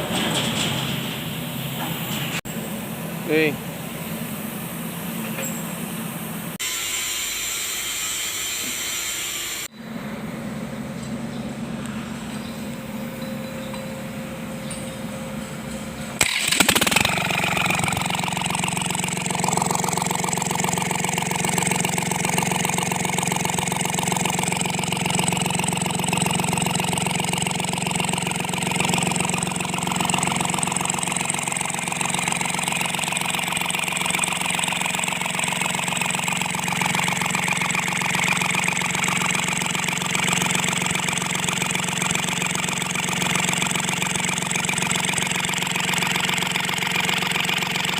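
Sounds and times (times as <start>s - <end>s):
diesel engine starting and idling: 9.6s - 47.9s.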